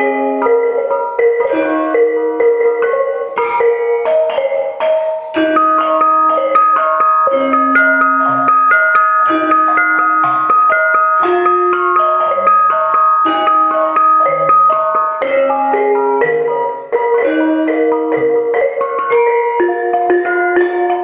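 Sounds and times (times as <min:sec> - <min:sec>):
gamelan music: 0:00.0 - 0:21.0.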